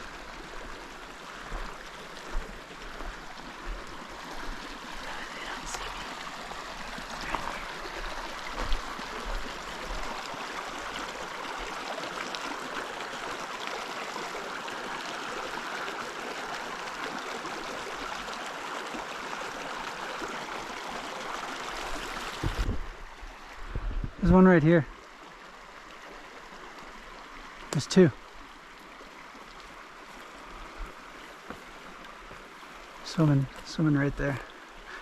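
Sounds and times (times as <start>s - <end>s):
creek flowing over rocks: 0.0s - 35.0s.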